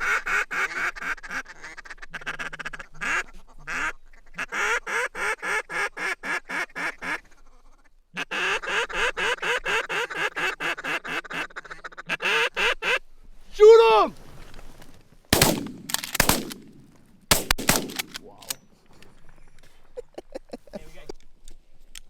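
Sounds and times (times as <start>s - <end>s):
duck and goose calls: 0.0s - 13.1s.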